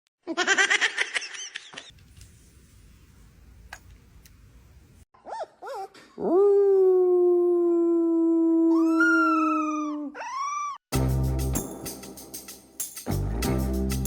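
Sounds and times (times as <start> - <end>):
dog howling and yelping: 8.5 - 10.8.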